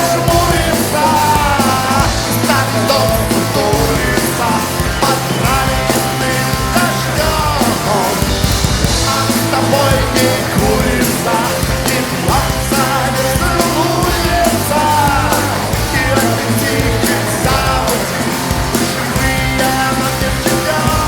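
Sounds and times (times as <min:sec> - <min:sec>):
drums keeping a steady beat: 0:00.0 - 0:21.0
rock band playing live: 0:00.0 - 0:21.0.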